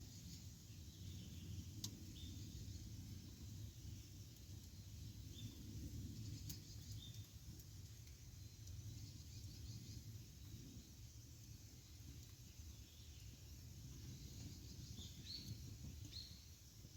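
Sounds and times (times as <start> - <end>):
campfire burning: 0.0 - 16.9
campfire crackling pops: 1.0 - 10.9, 11.9 - 12.6.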